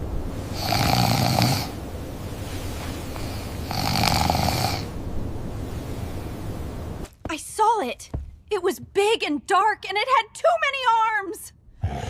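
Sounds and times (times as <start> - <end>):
person snoring: 0.5 - 1.8, 3.2 - 4.9.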